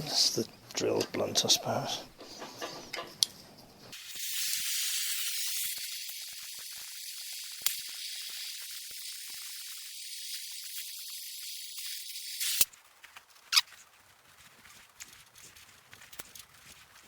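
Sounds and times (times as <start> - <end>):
spraying hiss: 3.9 - 12.7.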